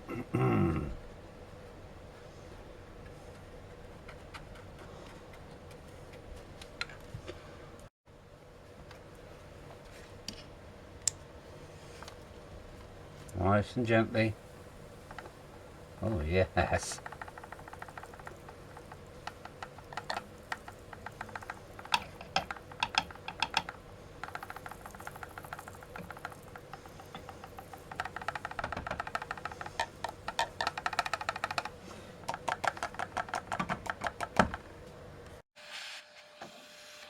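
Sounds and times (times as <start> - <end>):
sharp clicking and crackling: 14.9 - 34.6.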